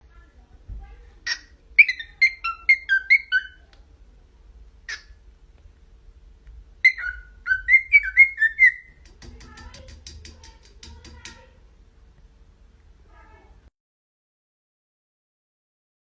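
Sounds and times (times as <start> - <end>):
pet bird whistling: 1.3 - 3.6, 6.8 - 9.0.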